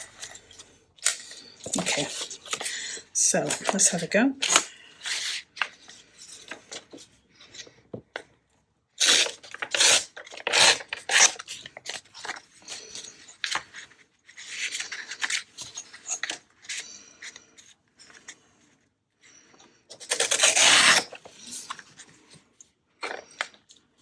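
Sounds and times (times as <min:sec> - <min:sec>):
paper tearing: 0:09.0 - 0:13.7, 0:19.9 - 0:21.5.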